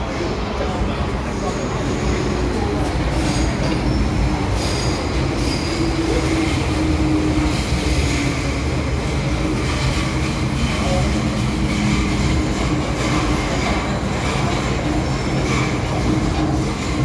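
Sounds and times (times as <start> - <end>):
train rumbling on rails: 0.0 - 17.0
high-pitched wheel squeals: 3.3 - 7.4.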